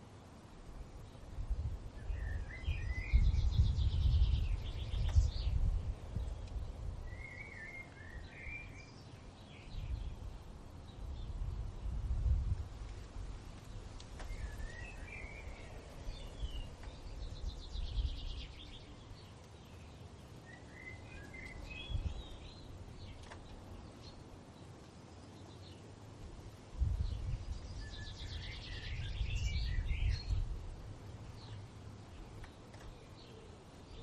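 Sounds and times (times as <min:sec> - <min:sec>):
wind rumbling on microphone: 0:00.0 - 0:19.5, 0:20.5 - 0:24.7, 0:25.6 - 0:34.0
songbird warbling and trilling: 0:07.1 - 0:10.2, 0:27.1 - 0:30.5.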